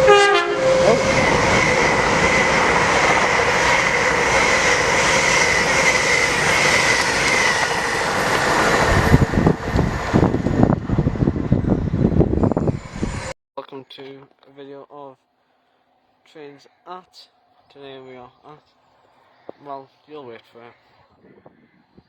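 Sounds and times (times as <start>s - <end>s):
high squealing tone: 0.0s - 10.8s
train wheels rushing on rails: 0.0s - 13.3s.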